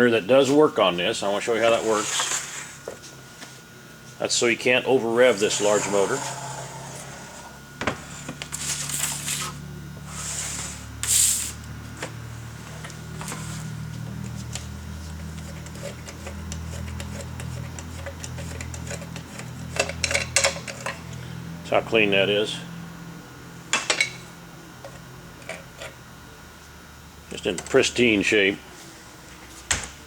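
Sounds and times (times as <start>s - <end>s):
steady low hum: 0.0s - 30.0s
short hissing rustles: 8.7s - 11.6s.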